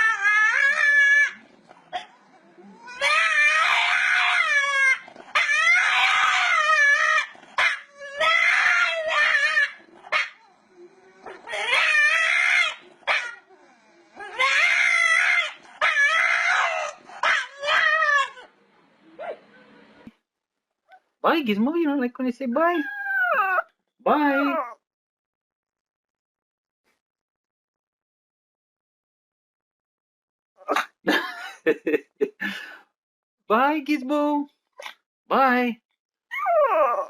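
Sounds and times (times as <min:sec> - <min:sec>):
dog howling: 0:00.0 - 0:01.4, 0:02.0 - 0:18.5, 0:22.8 - 0:24.8, 0:36.3 - 0:37.0.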